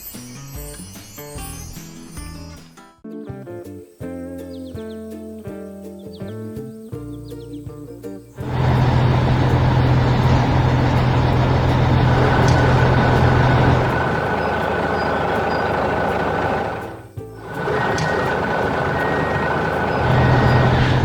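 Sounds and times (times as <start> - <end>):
diesel engine running: 8.4 - 21.0
thin steady whine: 8.4 - 21.0.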